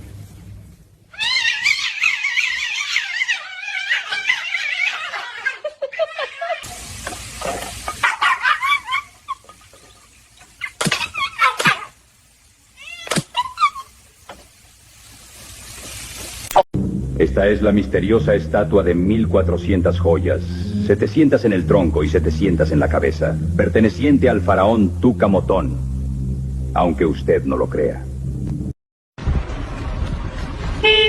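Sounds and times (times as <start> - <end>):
pet animal crying: 1.1 - 6.7, 8.0 - 9.6, 10.5 - 12.0, 12.8 - 14.0.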